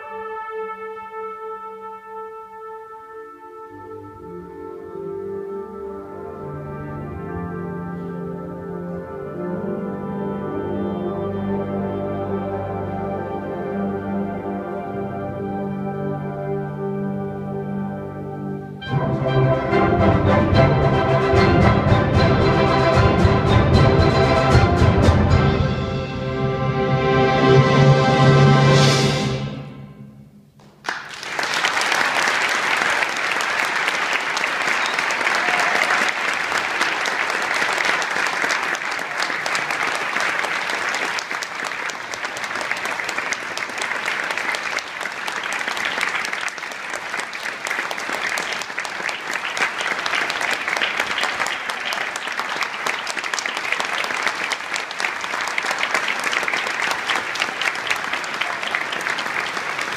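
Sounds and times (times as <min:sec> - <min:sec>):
audience applauding: 0:30.6 - 0:59.9.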